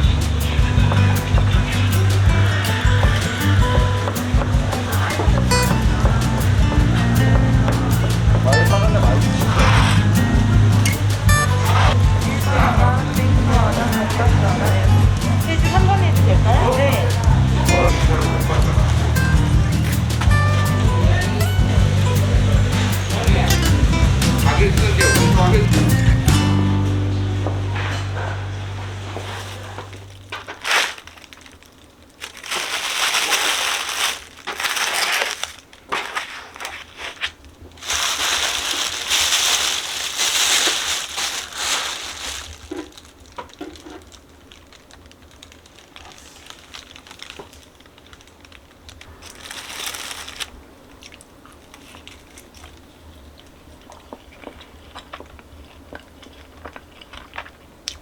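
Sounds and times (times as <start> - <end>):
rustles and clicks: 0.0 - 26.4, 27.5 - 55.3
packaging crinkling: 29.0 - 58.0.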